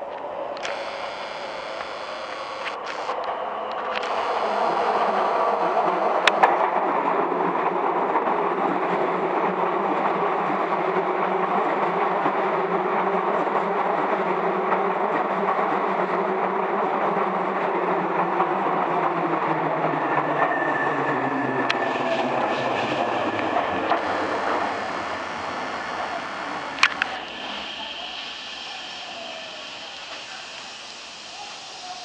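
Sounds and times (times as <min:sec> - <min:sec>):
high steady tone: 0:00.6 - 0:03.2, 0:04.0 - 0:06.5, 0:22.4 - 0:30.2
sharp clicks: 0:00.6 - 0:06.5, 0:23.8 - 0:27.2
falling pitch tone: 0:04.0 - 0:06.5.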